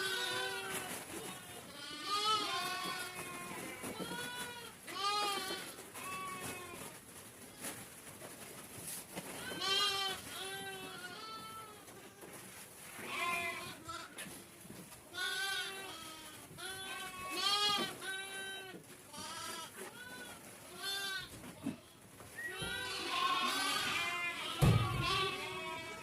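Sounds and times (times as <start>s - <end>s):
sheep and goats bleating: 0.0s - 6.9s, 9.4s - 12.4s, 13.0s - 14.2s, 15.0s - 26.0s.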